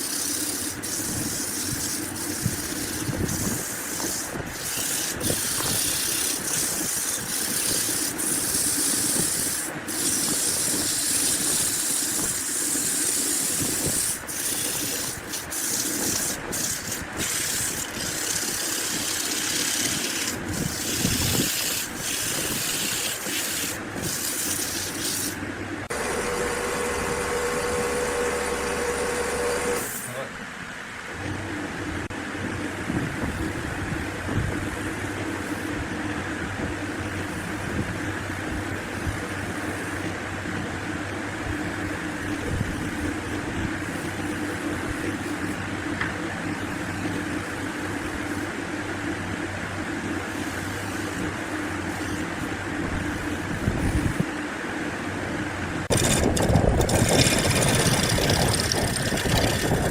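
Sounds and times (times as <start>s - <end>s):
motor humming: 0.0s - 30.3s, 55.8s - 59.9s
hissing woodworking machine: 0.0s - 30.4s.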